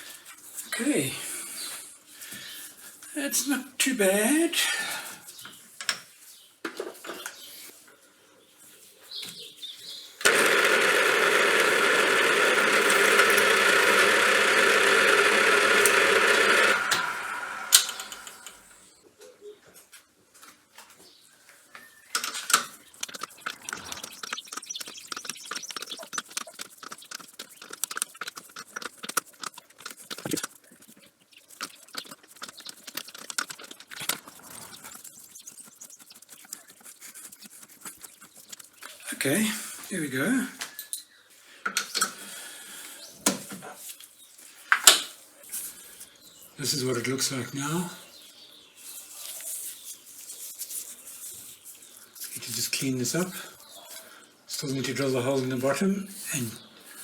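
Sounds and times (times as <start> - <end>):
electric workshop machine running: 10.2 - 18.9.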